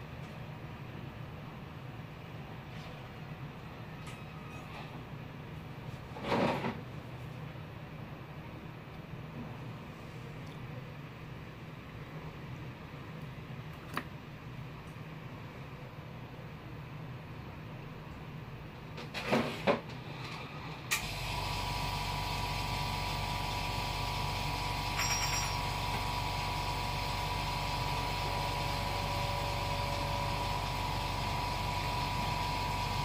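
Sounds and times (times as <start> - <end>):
electric machine humming and whining: 21.0 - 33.0.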